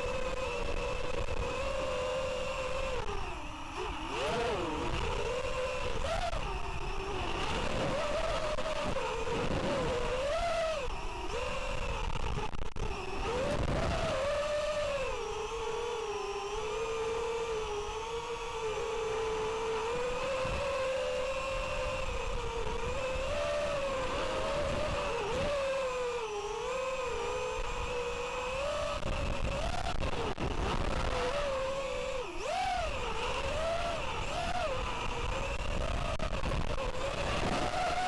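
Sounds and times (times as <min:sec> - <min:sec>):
drone motors whining: 0:00.0 - 0:38.0.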